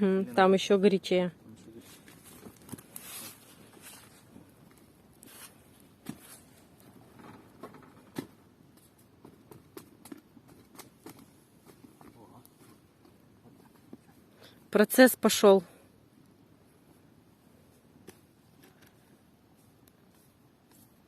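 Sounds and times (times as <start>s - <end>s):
bonfire crackling: 0.0s - 21.0s
sharp pops and clicks: 4.6s - 14.1s, 18.0s - 19.0s.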